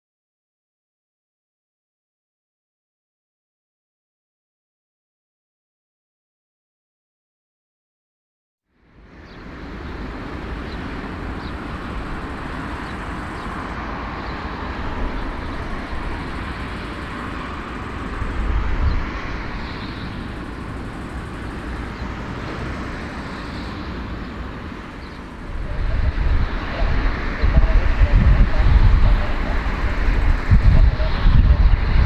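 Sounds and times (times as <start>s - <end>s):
aircraft engines rumbling: 8.8s - 32.0s.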